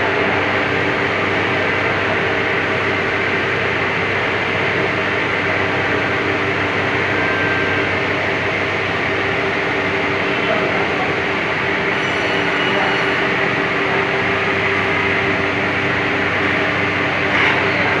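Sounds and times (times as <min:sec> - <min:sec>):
machine whirring: 0:11.8 - 0:18.0.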